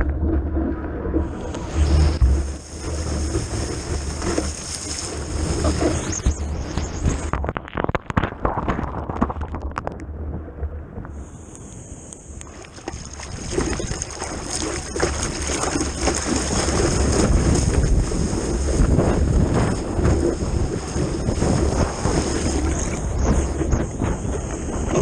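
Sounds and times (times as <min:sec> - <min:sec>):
low rumble: 0:00.0 - 0:25.0
wind on camera microphone: 0:00.0 - 0:25.0
rushing splashing water: 0:12.4 - 0:25.0.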